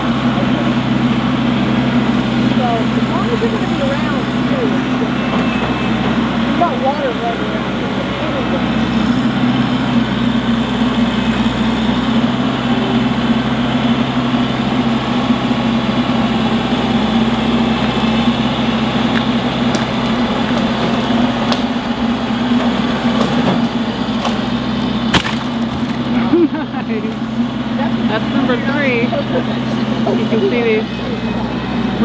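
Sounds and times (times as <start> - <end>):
tractor diesel engine running: 0.0 - 32.0
wood snapping: 19.0 - 21.9, 22.6 - 26.2.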